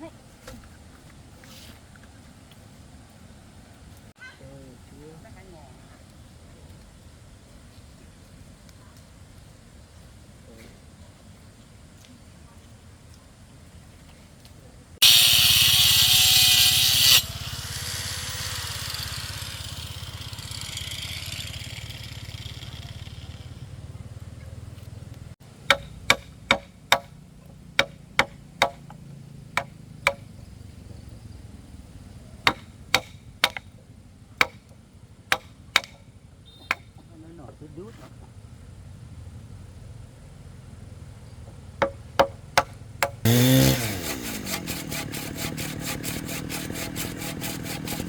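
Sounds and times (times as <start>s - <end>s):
hand power tool running: 15.0s - 23.7s, 43.2s - 48.0s
sharp knocks on wood: 25.7s - 27.1s, 27.8s - 28.9s, 29.6s - 30.2s, 32.5s - 33.6s, 35.3s - 36.0s, 41.8s - 43.2s.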